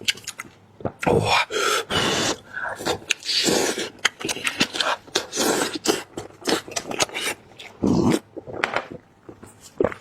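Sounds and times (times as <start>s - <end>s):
wet chewing and lip-smacking: 0.0s - 1.1s, 2.7s - 10.0s
sharp mouth clicks: 2.8s - 8.2s.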